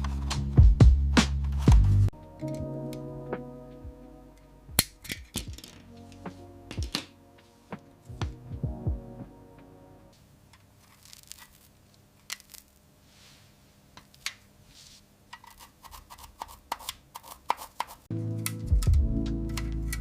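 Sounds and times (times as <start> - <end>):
background music: 0.0 - 10.2, 18.1 - 20.0
tools clicking and scraping: 4.8 - 7.1.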